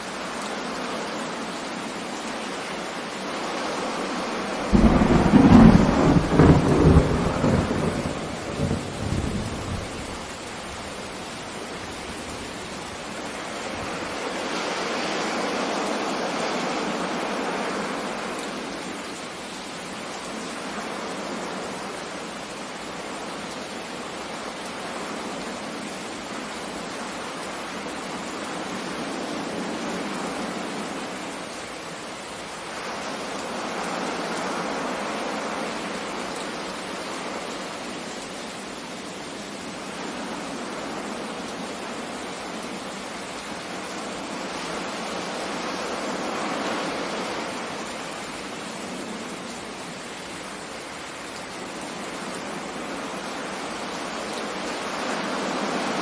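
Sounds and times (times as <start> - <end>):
sea surf: 0.0 - 9.8, 13.2 - 19.1, 32.6 - 38.1, 43.6 - 49.5, 51.6 - 56.0
rain rushing: 0.0 - 56.0
thunder rumble: 4.7 - 10.3.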